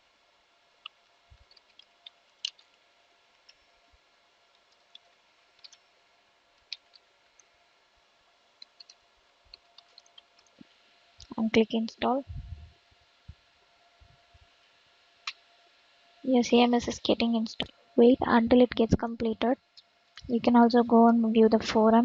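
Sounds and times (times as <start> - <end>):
low electrical hum: 0.0 - 22.0
keyboard and mouse clicks: 0.8 - 2.8, 4.5 - 5.8, 8.6 - 10.6.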